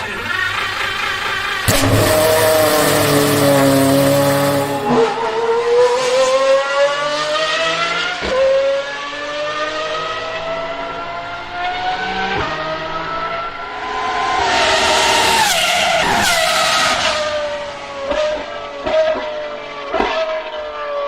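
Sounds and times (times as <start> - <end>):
gear upshifts: 0.0 - 6.2
sports car engine accelerating: 0.0 - 20.8.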